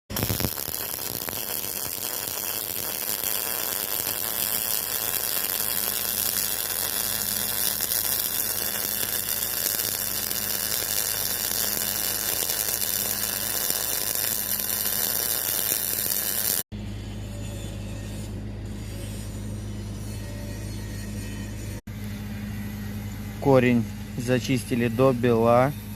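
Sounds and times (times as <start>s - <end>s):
welding arc crackling hiss: 0.1s - 16.6s.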